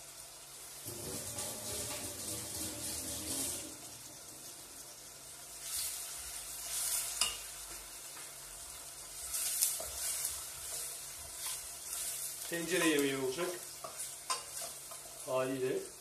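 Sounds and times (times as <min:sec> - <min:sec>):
onions sizzling in oil: 0:00.0 - 0:16.0.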